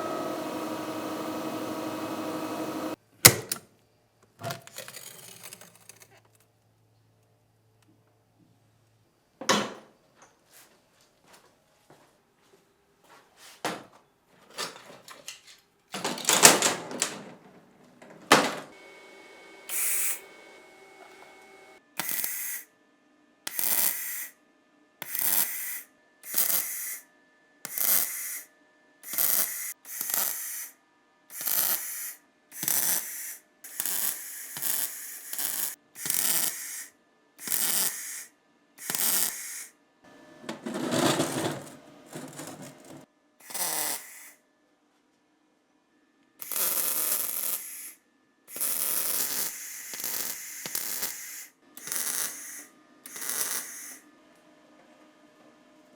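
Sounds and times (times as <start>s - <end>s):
irregular scrapes and knocks: 40.4s - 43.1s.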